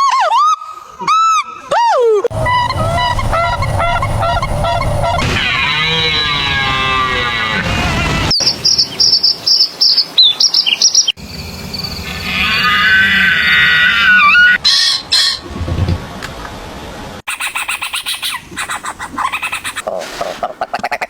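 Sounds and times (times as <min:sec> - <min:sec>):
bird warbling: 0:02.3 - 0:07.7, 0:17.3 - 0:21.0
bird calling: 0:02.3 - 0:08.6, 0:17.3 - 0:21.0.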